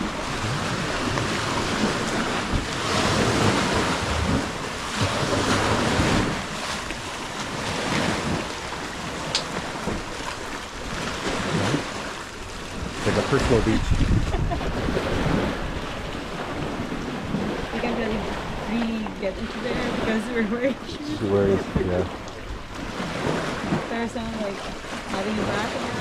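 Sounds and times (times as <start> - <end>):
sea waves washing onto shore: 0.0 - 26.0
wind rumbling on microphone: 0.0 - 26.0.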